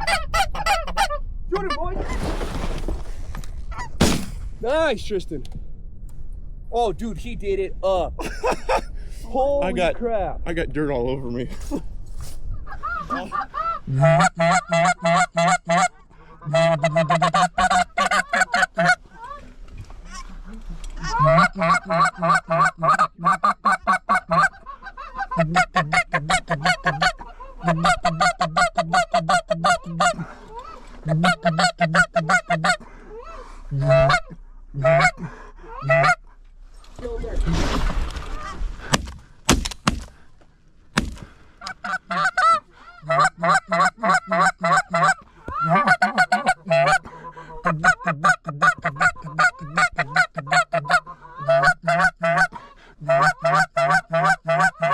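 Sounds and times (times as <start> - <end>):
goose honking and clucking: 0.0 - 2.6, 12.6 - 36.4, 41.6 - 54.9.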